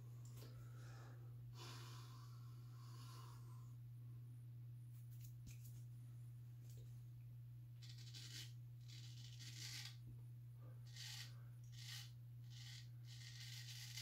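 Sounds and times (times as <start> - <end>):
steady low hum: 0.0 - 14.0
straight razor scraping whiskers: 7.8 - 10.0, 10.9 - 14.0.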